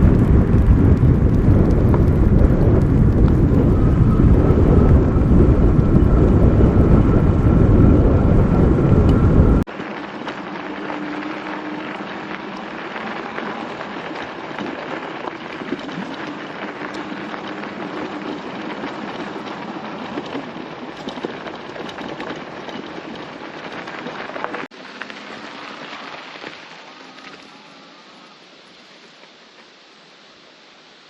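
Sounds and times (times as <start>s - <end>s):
wind on microphone: 0.0s - 24.7s
bike tyres on rough ground: 0.0s - 31.0s.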